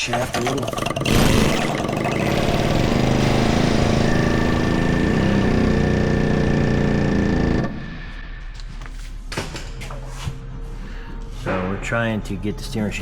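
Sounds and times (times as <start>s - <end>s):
pneumatic air hammer hammering: 0.3s - 8.0s.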